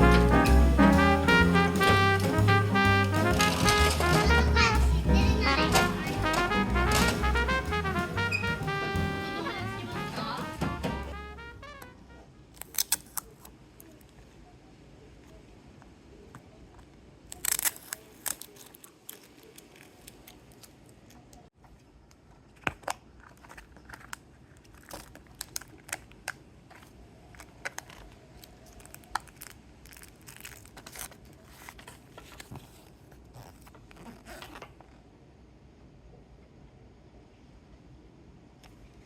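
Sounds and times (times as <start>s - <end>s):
plastic wrapping crinkling and tearing: 3.4s - 4.2s, 12.6s - 14.0s, 17.3s - 21.2s, 22.5s - 35.0s.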